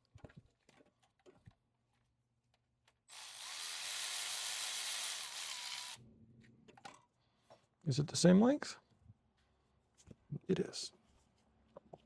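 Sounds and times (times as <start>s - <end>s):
power tool whirring: 3.1s - 6.0s.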